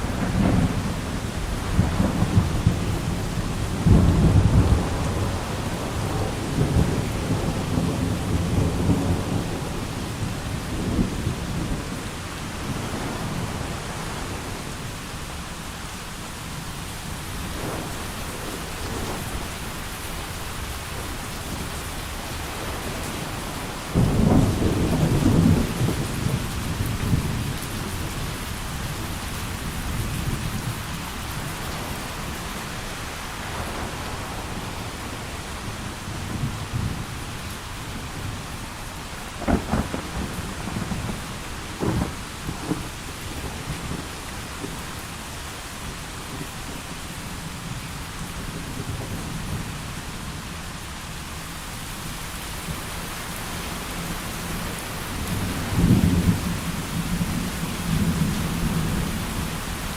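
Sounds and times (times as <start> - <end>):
thunder rumbling: 0.0 - 14.7, 16.9 - 37.3, 39.3 - 44.8, 53.7 - 59.9
rain falling: 0.0 - 59.9
loud thunderclap: 17.2 - 21.7, 22.4 - 27.6, 39.4 - 43.0, 55.2 - 59.9.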